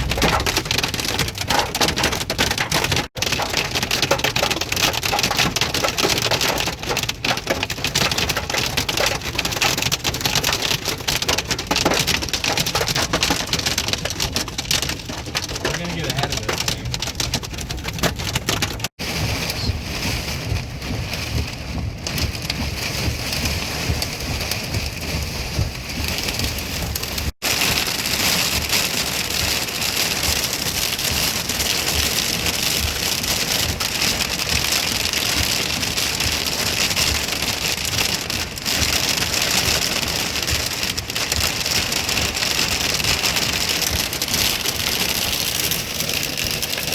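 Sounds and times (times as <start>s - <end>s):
heavy rain beating on a vehicle: 0.0s - 46.9s.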